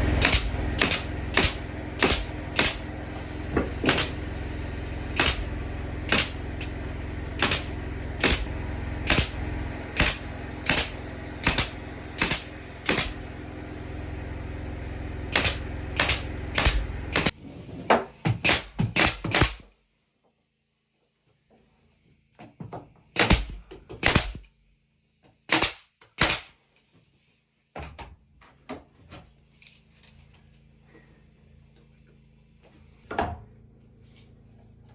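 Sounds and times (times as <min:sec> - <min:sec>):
low motor hum: 0:00.0 - 0:17.8.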